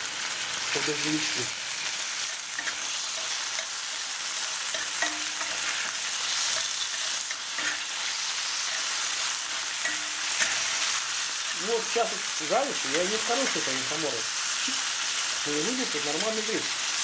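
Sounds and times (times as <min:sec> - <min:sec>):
mushrooms sizzling in frying pan: 0:00.0 - 0:17.0.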